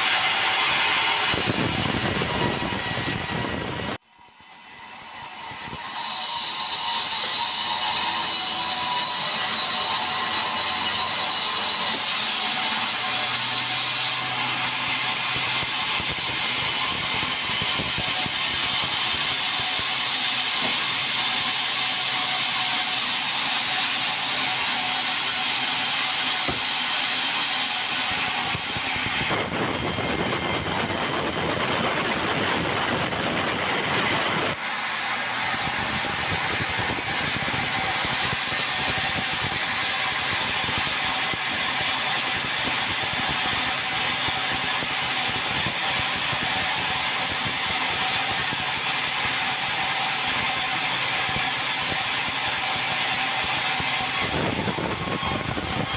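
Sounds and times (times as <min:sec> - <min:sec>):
bandsaw cutting timber: 0:00.0 - 0:55.9.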